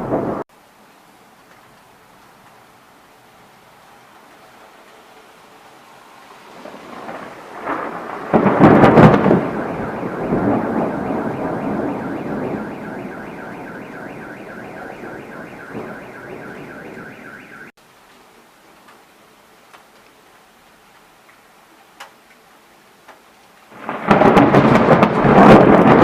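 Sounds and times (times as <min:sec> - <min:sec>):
thunderclap: 0:00.0 - 0:00.4, 0:06.5 - 0:17.7, 0:23.7 - 0:26.0
pulsing electronic alarm: 0:08.5 - 0:17.7.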